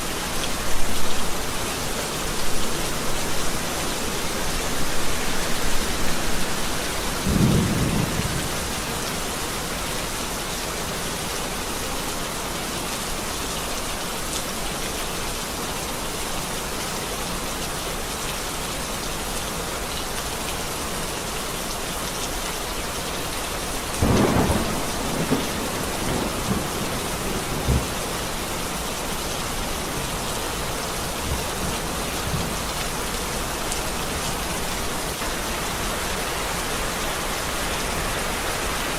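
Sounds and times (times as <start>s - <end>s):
heavy rain: 0.0s - 38.9s
thunder rumbling: 5.0s - 8.9s, 24.0s - 28.3s
thunder clap: 7.2s - 8.8s, 24.0s - 28.0s.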